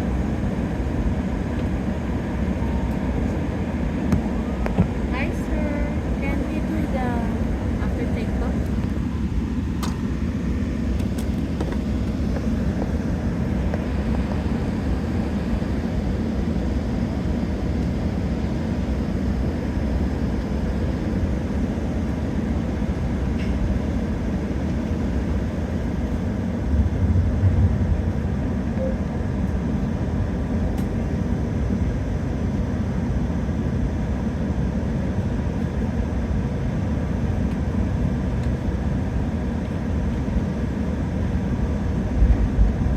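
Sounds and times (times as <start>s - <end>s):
airplane cabin rumble: 0.0s - 42.9s
heavy low bump: 26.6s - 28.7s.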